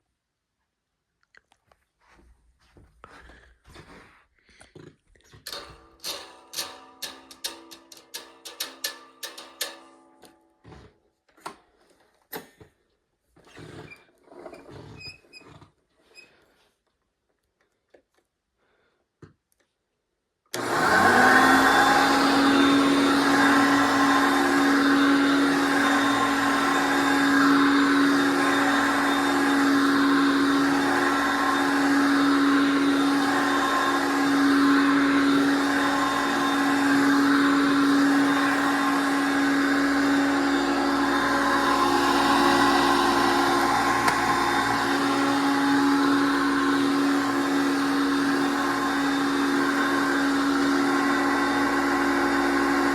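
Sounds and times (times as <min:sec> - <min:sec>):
vacuum cleaner motor whine: 0:20.5 - 0:52.9.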